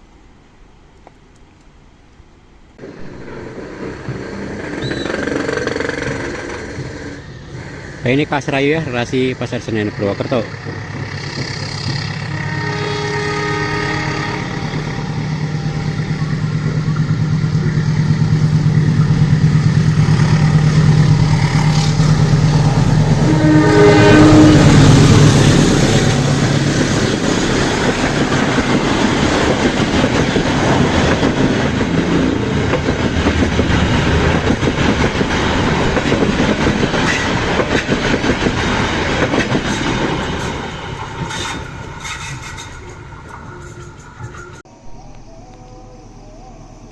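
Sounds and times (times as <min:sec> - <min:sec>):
locomotive engine drone: 0:01.9 - 0:46.9
carriages clattering over rails: 0:02.8 - 0:12.6, 0:24.6 - 0:44.7
train horn: 0:12.2 - 0:15.4, 0:21.7 - 0:25.4.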